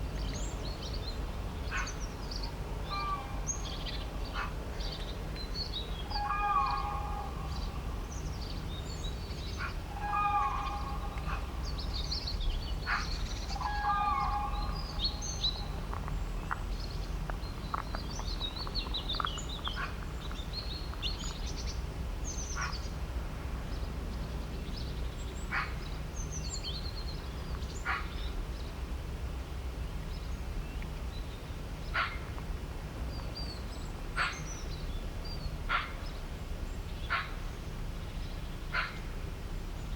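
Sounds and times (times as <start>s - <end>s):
birds chirping: 0.2s - 23.0s
lower pitched bird call: 6.0s - 15.8s.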